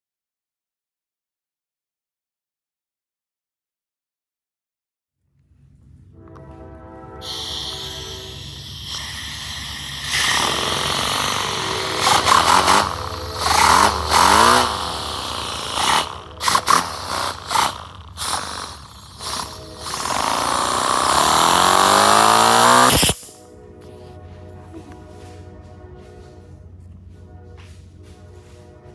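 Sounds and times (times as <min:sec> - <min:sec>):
background music: 0:05.8 - 0:28.9
compressed air hissing: 0:07.2 - 0:23.4.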